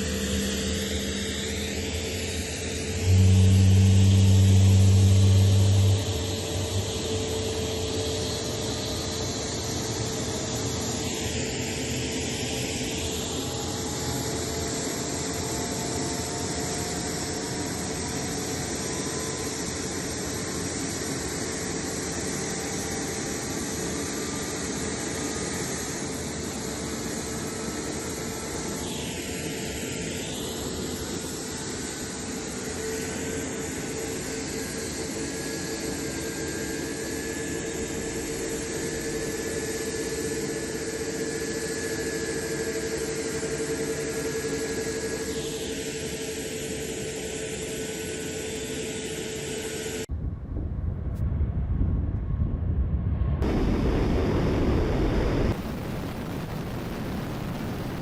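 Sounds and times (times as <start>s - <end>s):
jet engines roaring: 0.0s - 40.7s, 53.0s - 58.0s.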